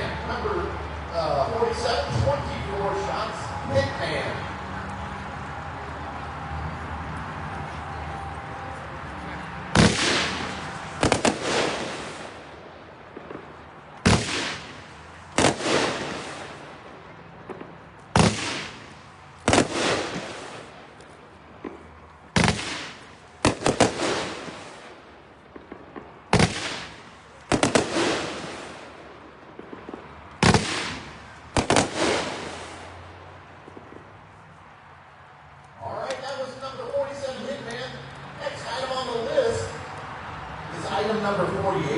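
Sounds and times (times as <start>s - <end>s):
firework bangs with echo: 9.7s - 21.0s, 21.6s - 33.0s.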